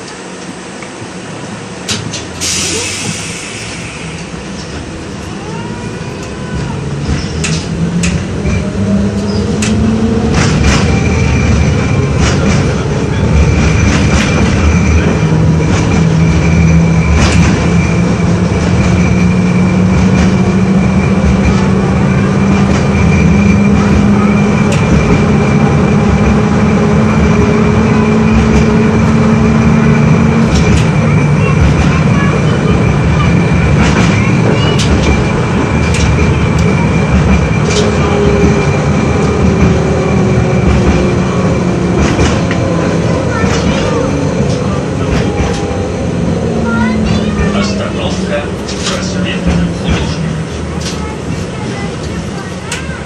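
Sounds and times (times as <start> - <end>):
tram motors humming: 0.0 - 53.0.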